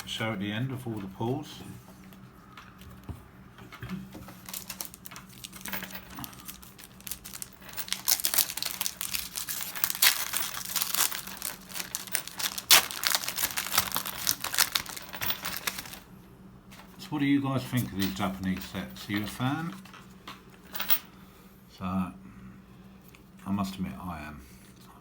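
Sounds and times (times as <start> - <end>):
wrapper crinkling and tearing: 4.4 - 16.0.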